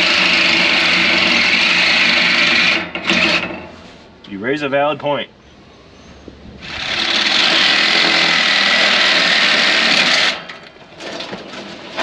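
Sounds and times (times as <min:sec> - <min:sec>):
power tool running hard: 0:00.0 - 0:03.4, 0:06.6 - 0:10.4.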